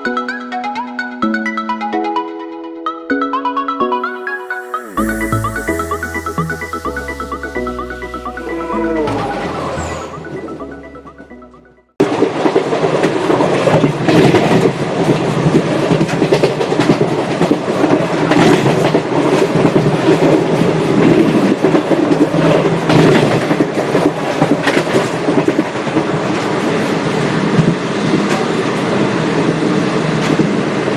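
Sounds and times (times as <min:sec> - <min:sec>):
train wheels clattering on rails: 0:12.0 - 0:30.9.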